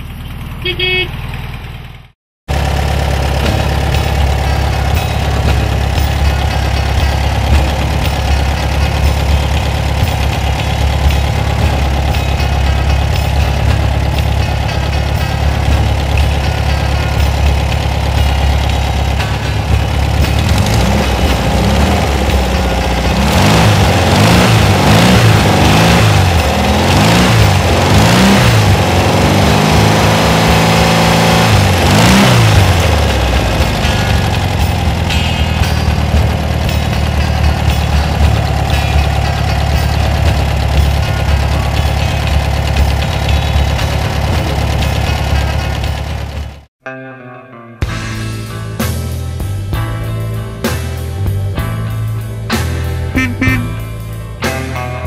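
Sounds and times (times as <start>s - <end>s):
air-cooled engine idling and revving: 0.0s - 46.7s.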